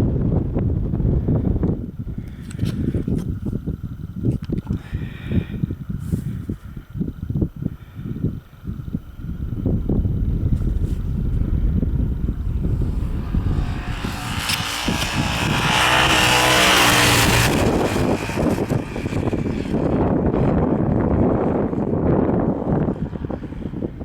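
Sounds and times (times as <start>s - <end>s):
motorcycle engine under load: 8.1s - 24.0s.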